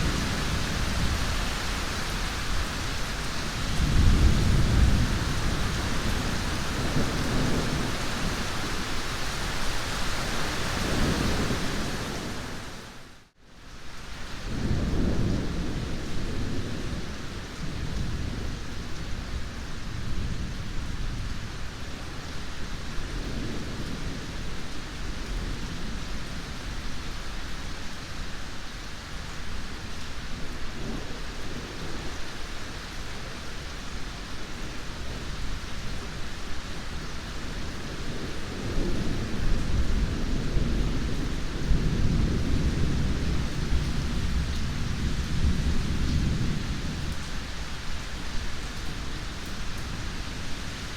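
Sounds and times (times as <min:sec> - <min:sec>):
rolling thunder rumbling: 0:00.0 - 0:08.9, 0:36.8 - 0:47.5
heavy rain: 0:00.0 - 0:50.9.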